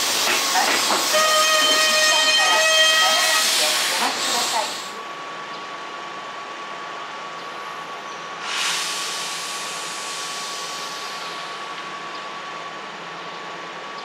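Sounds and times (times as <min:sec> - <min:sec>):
air hiss burst: 0:08.4 - 0:11.5.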